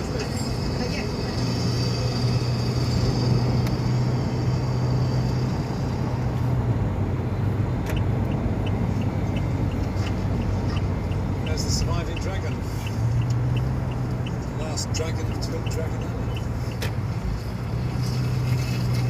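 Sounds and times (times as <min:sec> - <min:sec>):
motor vehicle running: 0:00.0 - 0:19.0
street traffic: 0:00.0 - 0:19.0
light regular ticking: 0:07.8 - 0:17.6.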